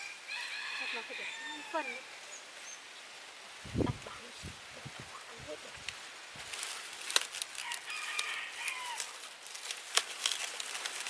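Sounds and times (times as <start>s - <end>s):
chicken calling: 7.6s - 9.2s.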